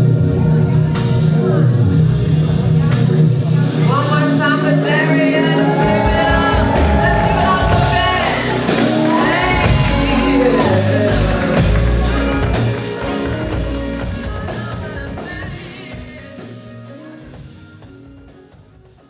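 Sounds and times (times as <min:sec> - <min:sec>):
live band music: 0:00.0 - 0:19.0.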